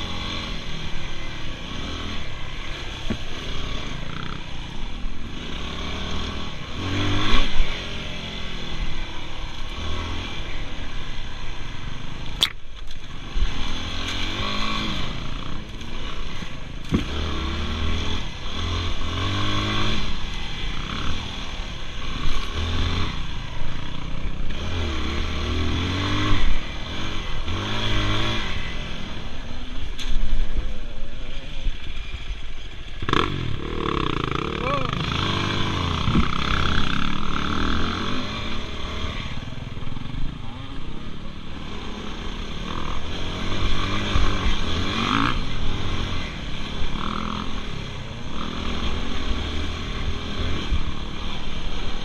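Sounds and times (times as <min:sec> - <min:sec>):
dirt bike engine revving: 0:00.0 - 0:11.5, 0:13.2 - 0:29.4, 0:32.9 - 0:52.0
sharp click: 0:12.3 - 0:13.0.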